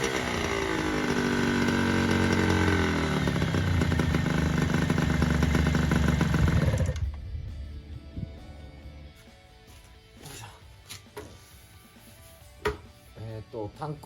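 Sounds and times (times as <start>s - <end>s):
two-stroke engine running: 0.0s - 7.2s.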